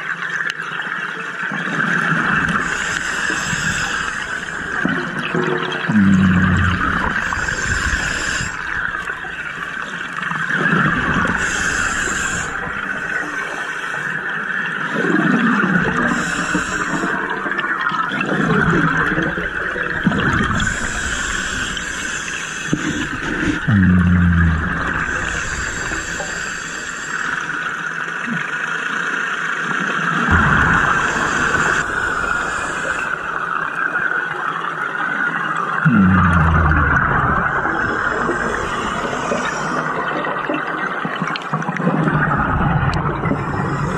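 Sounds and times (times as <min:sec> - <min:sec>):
exhaled bubbles gurgling: 0:00.0 - 0:43.9
diver inhaling through regulator: 0:20.6 - 0:27.5, 0:30.3 - 0:33.4, 0:35.9 - 0:40.0
steady hiss: 0:25.0 - 0:27.8, 0:30.4 - 0:33.8
low droning tone: 0:35.9 - 0:39.5.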